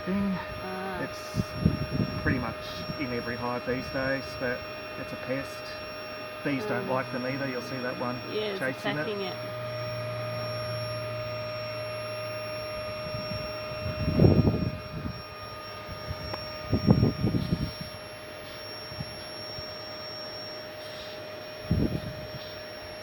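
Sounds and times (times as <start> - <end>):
small motor humming: 0.0 - 23.0
wind gusts buffeting microphone: 1.2 - 3.0.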